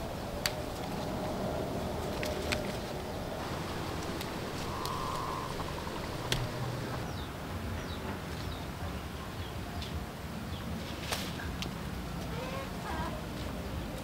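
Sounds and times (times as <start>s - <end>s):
steady low rumble: 0.0s - 7.2s
bird chirps: 3.2s - 7.3s
sharp clicks: 3.4s - 7.1s.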